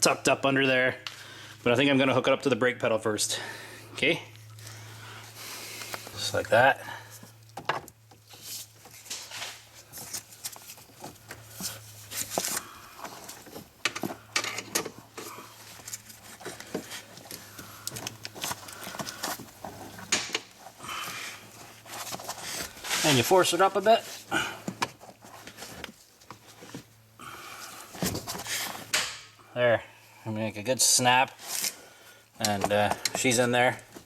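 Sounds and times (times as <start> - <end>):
steady low hum: 0.0 - 34.0
brake cable clicks and rattles: 12.2 - 20.5.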